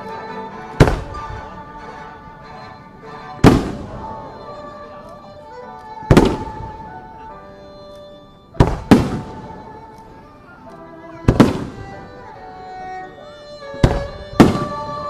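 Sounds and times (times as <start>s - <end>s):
music playing: 0.0s - 15.0s
firework shells bursting: 0.8s - 1.5s, 3.4s - 4.2s, 6.1s - 6.9s, 8.6s - 9.7s, 11.2s - 12.1s, 13.8s - 15.0s.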